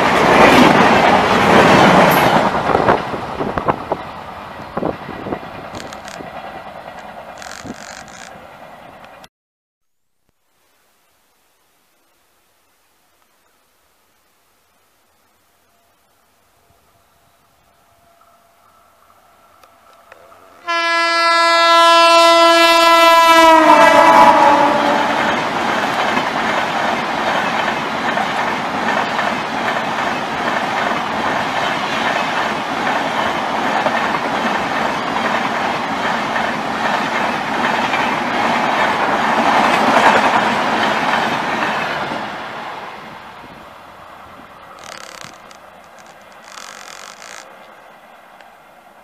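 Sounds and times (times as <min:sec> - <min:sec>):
train coaches rumbling on rails: 0:00.0 - 0:09.3, 0:18.6 - 0:49.0
locomotive horn: 0:20.6 - 0:25.4.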